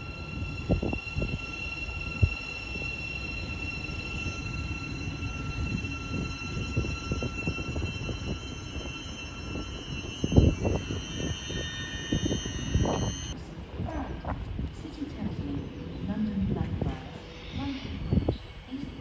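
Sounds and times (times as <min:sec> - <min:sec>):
high-pitched whining tones: 0:00.0 - 0:13.4
train rumbling: 0:00.0 - 0:19.0.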